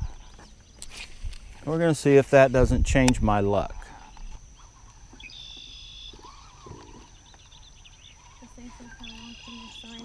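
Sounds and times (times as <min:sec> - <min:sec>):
buzzy high animal call: 0:04.6 - 0:07.2.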